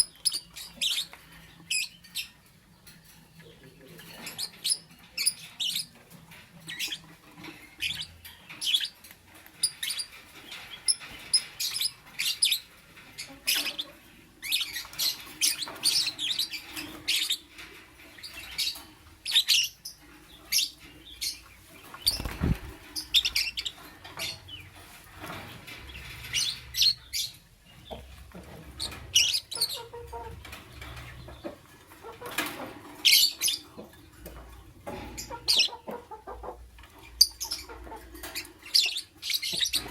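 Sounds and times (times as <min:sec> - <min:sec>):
lovebird chirping: 0:18.2 - 0:24.7.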